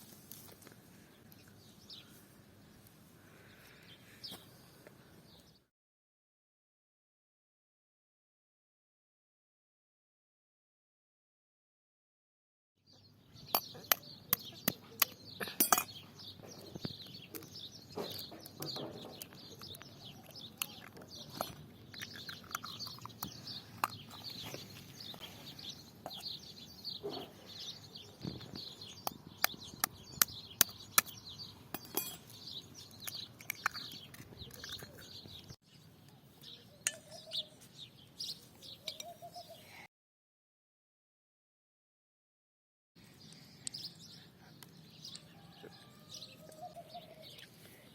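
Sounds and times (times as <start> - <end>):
birds singing: 1.0 - 5.7, 12.9 - 39.9, 43.0 - 47.9
kitchen utensils clinking: 31.8 - 32.4.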